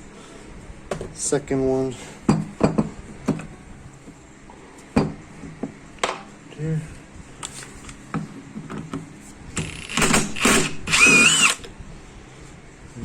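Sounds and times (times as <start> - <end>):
cordless power tool whining: 9.6 - 11.7.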